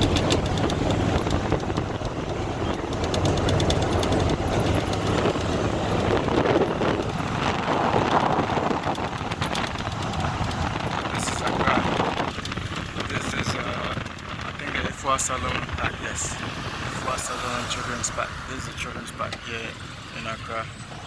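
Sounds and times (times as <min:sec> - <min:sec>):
vehicle engine and road rumble: 0:00.0 - 0:21.0.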